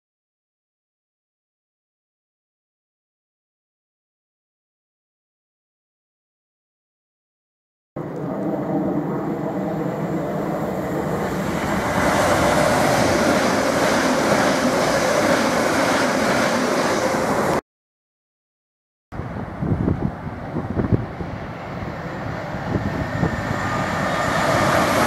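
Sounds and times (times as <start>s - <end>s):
electric train passing: 8.0s - 17.6s, 19.2s - 25.0s.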